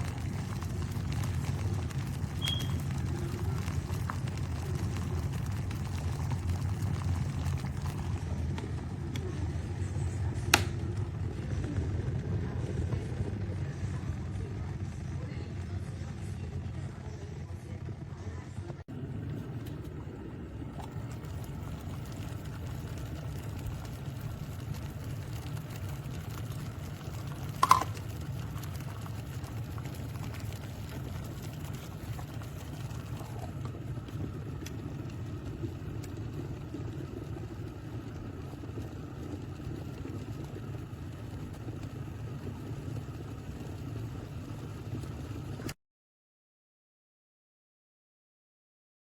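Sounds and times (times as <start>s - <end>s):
electric kettle heating water: 0.0s - 45.8s
kettle switch click: 10.5s - 10.8s, 27.6s - 28.0s.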